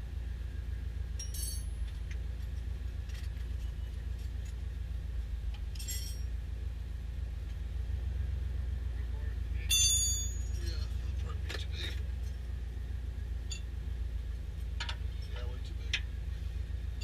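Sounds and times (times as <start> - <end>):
steady low hum: 0.0 - 17.0
light metallic clinks: 1.2 - 2.2, 5.7 - 6.3.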